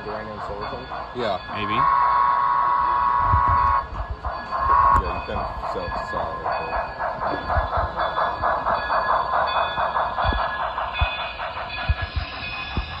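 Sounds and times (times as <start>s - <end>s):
model train rapid pulsing: 0.0s - 13.0s.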